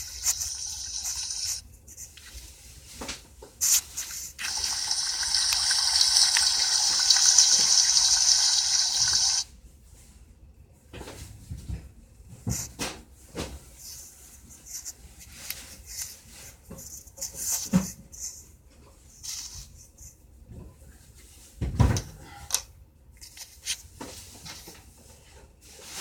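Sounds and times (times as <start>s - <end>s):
water running from tap: 4.4s - 9.4s.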